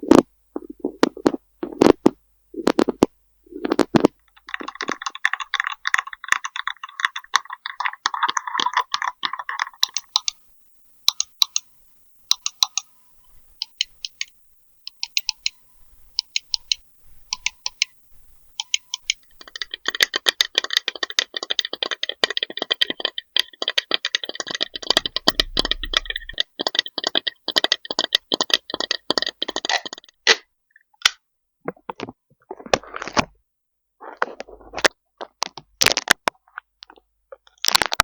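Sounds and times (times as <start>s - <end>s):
fast tapping and rattling: 0.0s - 10.4s, 18.6s - 30.2s.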